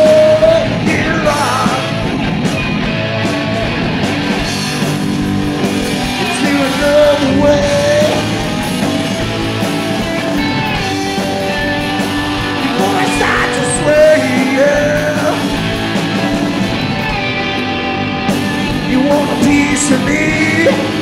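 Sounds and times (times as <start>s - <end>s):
live rock band playing: 0.0s - 21.0s
gliding sustained guitar notes: 5.1s - 19.1s.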